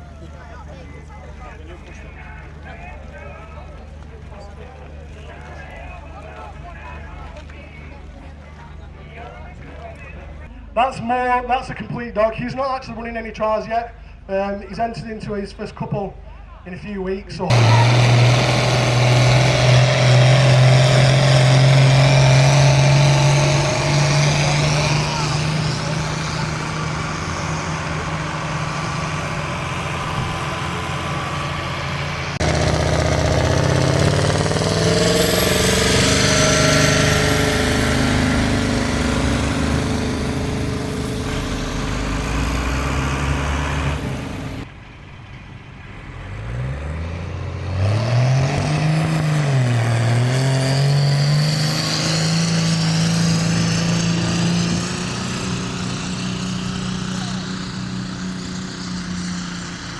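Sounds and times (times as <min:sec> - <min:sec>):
vehicle engine revving: 0:17.5 - 0:44.7, 0:46.1 - 0:59.9.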